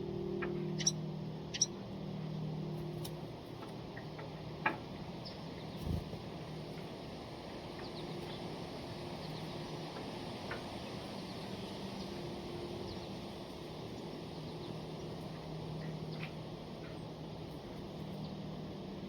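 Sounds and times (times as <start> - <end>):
low outdoor hum: 0.0 - 19.0
small birds chirping: 0.7 - 1.8, 7.6 - 18.4.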